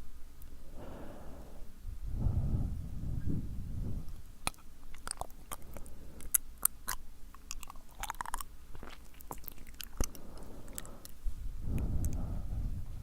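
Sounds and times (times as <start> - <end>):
wet mouth clicks and smacks: 4.4 - 12.2.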